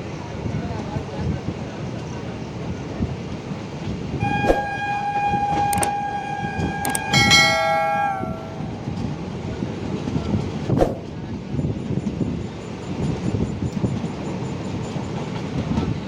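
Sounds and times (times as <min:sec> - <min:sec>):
train horn blast: 0:04.2 - 0:09.6
moving train rumble: 0:04.2 - 0:09.8
sharp clicks: 0:04.4 - 0:07.2.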